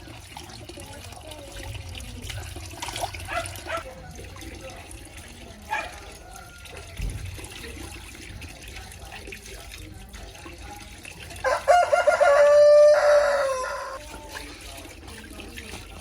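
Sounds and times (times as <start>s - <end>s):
rooster crowing: 11.4s - 14.0s.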